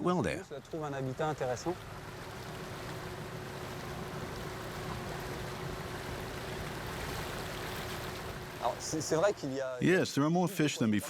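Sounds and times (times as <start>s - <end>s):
faint steady hum: 0.0s - 11.0s
water noise: 0.0s - 11.0s
small boat motor running: 0.8s - 9.6s.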